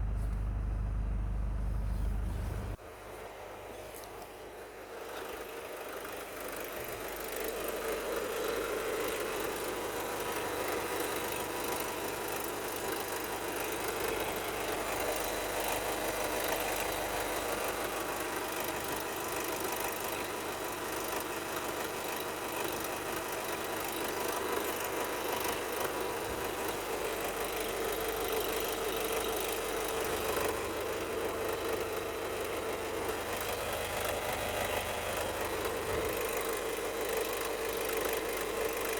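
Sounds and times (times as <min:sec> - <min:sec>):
diesel engine running: 0:00.0 - 0:02.8, 0:24.4 - 0:38.9.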